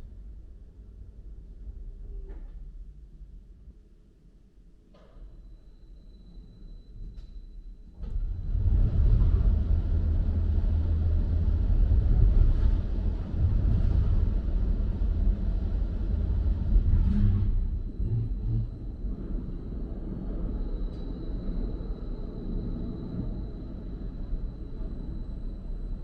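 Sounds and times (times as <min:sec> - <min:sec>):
parking machinery rumbling: 0:07.9 - 0:26.0.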